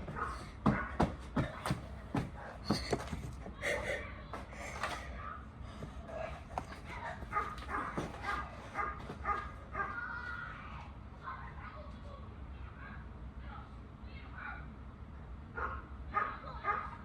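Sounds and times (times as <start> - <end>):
dog barking and yipping: 6.6 - 10.0.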